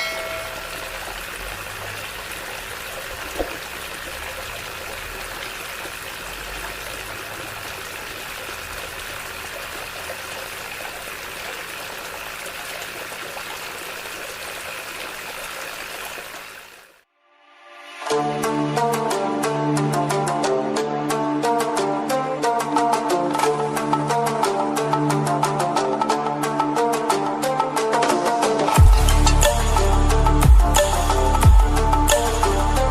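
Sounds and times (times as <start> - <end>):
water running from pump: 0.0 - 17.0, 28.7 - 32.9.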